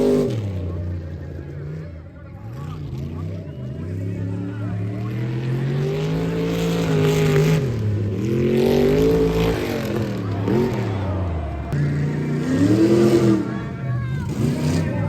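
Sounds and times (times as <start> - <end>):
truck engine revving hard: 0.0 - 15.0.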